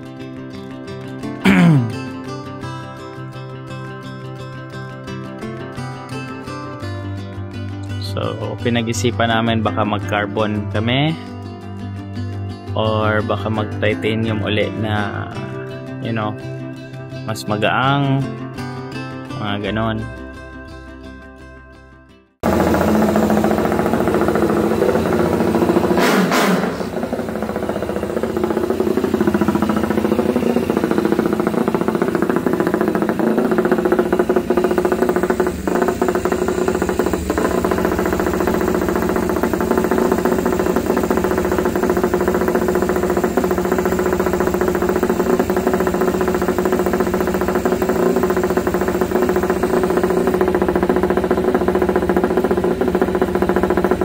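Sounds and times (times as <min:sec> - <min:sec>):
motorcycle engine idling: 0:22.4 - 0:54.0.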